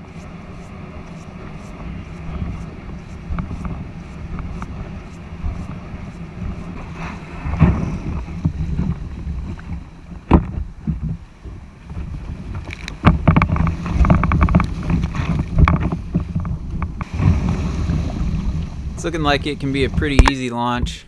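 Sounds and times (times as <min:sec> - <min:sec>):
wind rumbling on microphone: 0:00.0 - 0:21.0
knocks and clatter: 0:07.5 - 0:11.2, 0:12.5 - 0:17.6.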